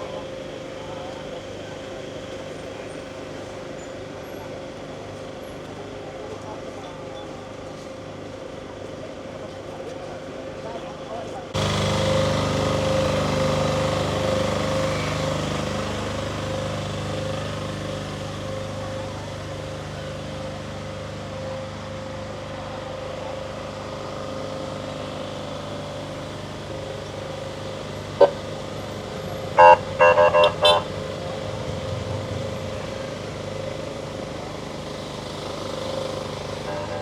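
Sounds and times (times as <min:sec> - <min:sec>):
traffic hum: 0:11.6 - 0:37.0
vehicle horn honking: 0:28.1 - 0:32.0, 0:36.6 - 0:37.0.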